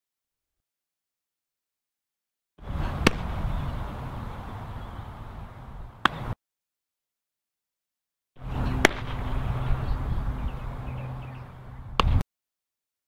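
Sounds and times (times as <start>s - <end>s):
outdoor field noise: 2.6s - 6.4s, 8.4s - 12.2s
softball smacking into leather glove: 3.0s - 3.3s, 6.0s - 6.2s, 8.8s - 9.1s, 12.0s - 12.2s.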